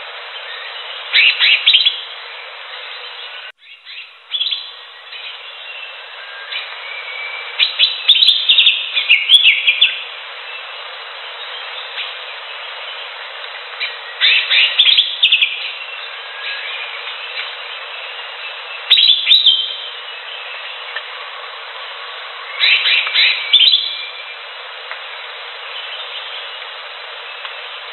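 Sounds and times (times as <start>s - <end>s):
background hiss: 0.0s - 27.9s
bird chirping rapidly: 0.4s - 2.1s, 3.3s - 10.7s, 13.8s - 21.0s, 22.5s - 24.4s.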